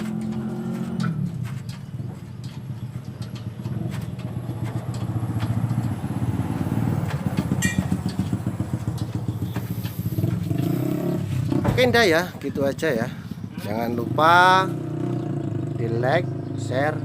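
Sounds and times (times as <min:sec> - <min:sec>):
vehicle engine running: 0:00.0 - 0:16.9.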